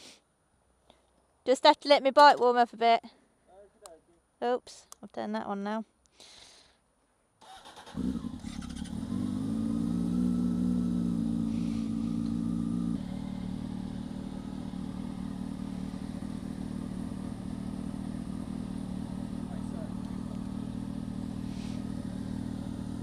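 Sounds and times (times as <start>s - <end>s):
motorcycle engine starting and idling: 7.4s - 23.0s.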